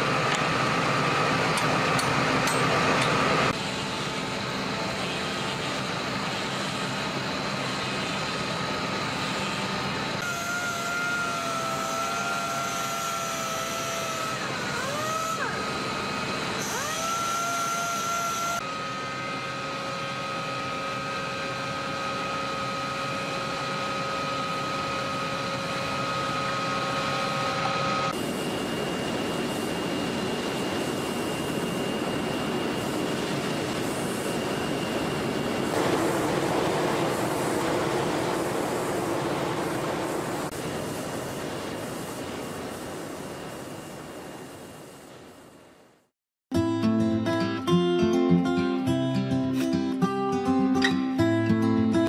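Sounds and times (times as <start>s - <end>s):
woodworking machinery running: 0.0s - 31.2s, 33.6s - 42.0s
motor whine: 0.0s - 42.3s.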